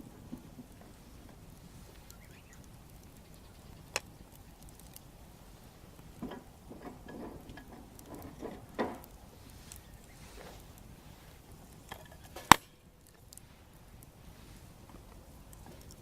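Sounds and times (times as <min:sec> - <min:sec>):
bonfire crackling: 0:00.0 - 0:16.0
short knocks and rustles: 0:06.2 - 0:10.7
sharp pop from fire: 0:12.3 - 0:13.4.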